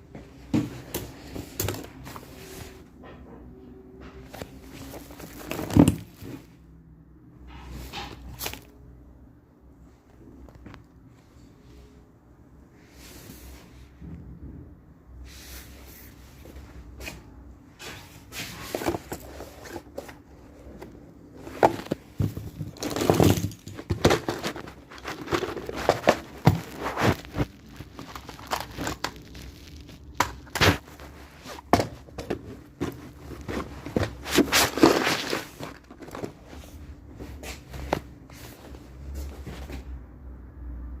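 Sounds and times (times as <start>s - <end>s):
packaging crinkling and tearing: 21.5s - 36.4s.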